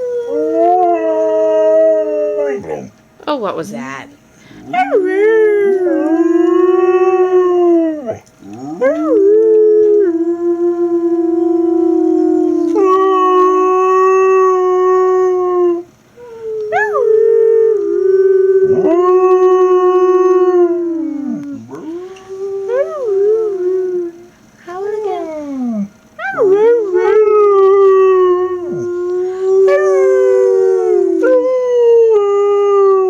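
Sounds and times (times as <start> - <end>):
dog howling: 0.0 - 3.0, 4.6 - 33.0.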